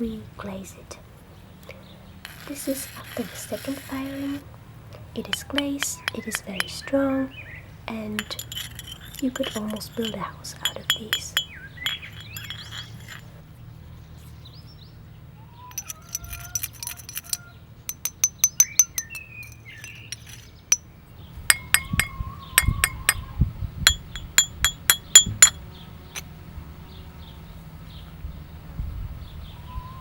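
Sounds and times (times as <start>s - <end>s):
ceramic pieces clinking: 5.2s - 6.9s, 8.1s - 13.3s, 15.7s - 20.8s, 21.5s - 23.3s, 23.9s - 25.6s
birds singing: 5.2s - 17.7s, 18.3s - 26.2s, 26.8s - 30.0s.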